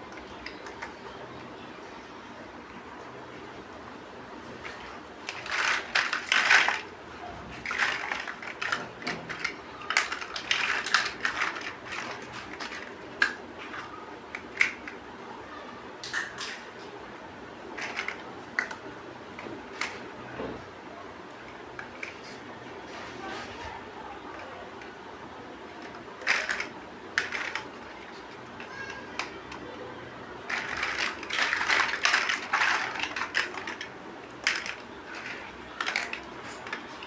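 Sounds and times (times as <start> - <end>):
plastic bricks clicking and rattling: 4.6 - 6.9, 7.5 - 15.0, 17.8 - 20.1, 25.7 - 29.7, 30.4 - 37.0.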